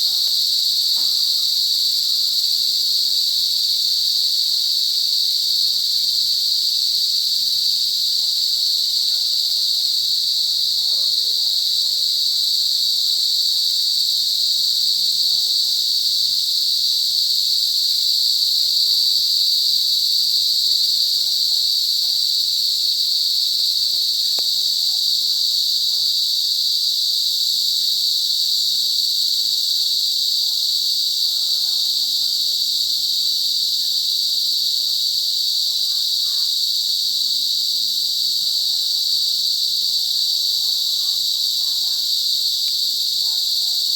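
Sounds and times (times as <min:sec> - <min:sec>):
cicadas buzzing: 0:00.0 - 0:43.9.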